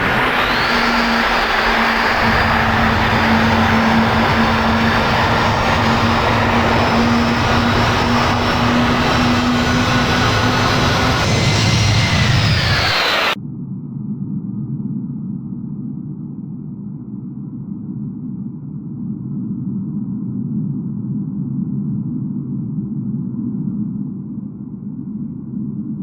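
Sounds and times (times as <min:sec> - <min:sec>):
faint high whine: 0:00.0 - 0:13.4
jet engines running: 0:00.0 - 0:13.4.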